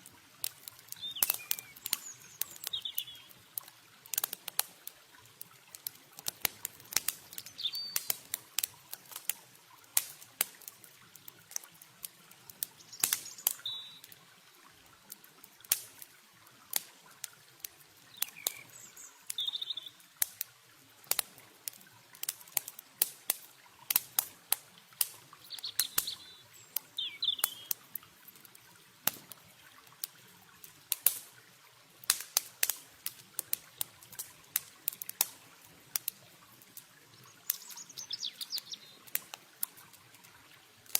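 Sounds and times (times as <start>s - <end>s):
campfire crackling: 0.0s - 40.9s
faint rush of water: 0.0s - 40.9s
bird chirps: 1.0s - 3.3s, 7.4s - 8.1s, 12.9s - 14.0s, 18.1s - 20.0s, 25.4s - 27.7s, 37.4s - 39.0s.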